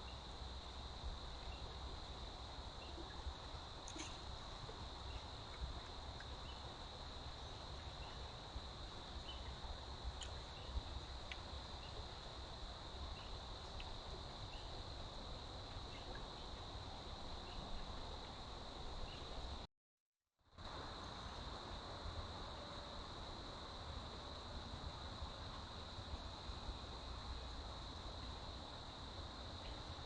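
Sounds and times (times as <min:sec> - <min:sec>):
insects droning: 0:00.0 - 0:19.7, 0:20.5 - 0:30.0
faint chirps: 0:02.8 - 0:05.6, 0:09.2 - 0:09.6.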